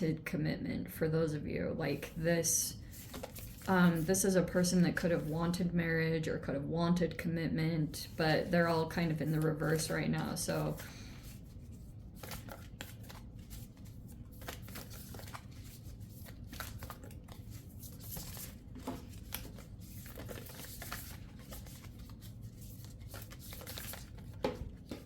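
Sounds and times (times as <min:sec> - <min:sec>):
cards being shuffled: 0:02.9 - 0:04.1, 0:10.6 - 0:25.0.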